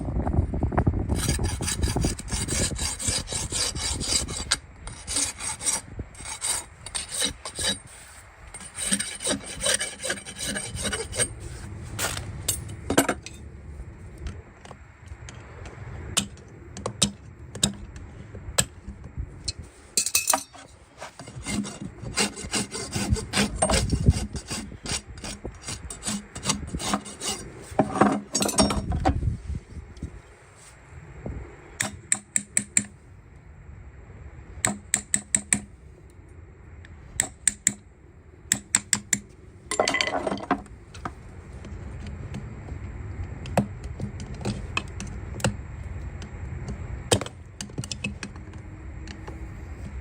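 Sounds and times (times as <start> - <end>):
rasp filing a hoof: 1.1 - 11.8, 20.4 - 29.0.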